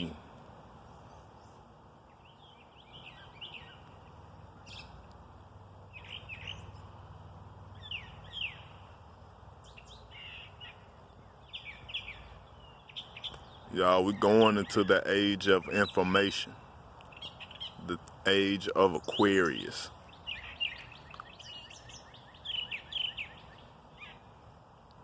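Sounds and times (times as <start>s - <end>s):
songbirds chirping: 0.0s - 25.0s.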